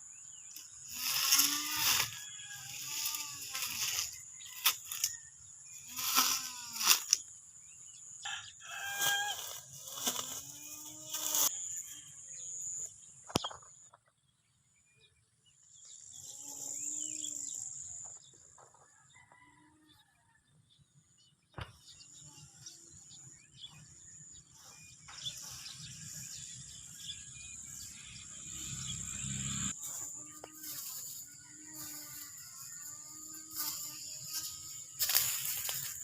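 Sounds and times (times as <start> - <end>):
roosters crowing: 1.0 - 6.8, 8.2 - 10.3, 18.8 - 20.4.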